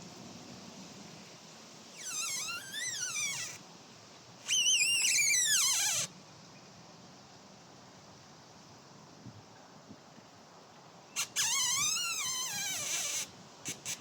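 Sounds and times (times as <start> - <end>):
trees creaking: 1.9 - 3.6, 4.4 - 6.2, 11.2 - 14.0.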